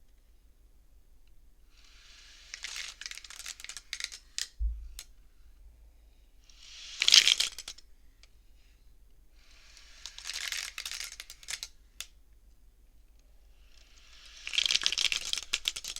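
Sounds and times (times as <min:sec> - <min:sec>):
abacus beads sliding and clicking: 0:01.8 - 0:04.6, 0:06.5 - 0:07.8, 0:09.4 - 0:12.2, 0:13.6 - 0:15.9
dull low bump: 0:04.6 - 0:05.9.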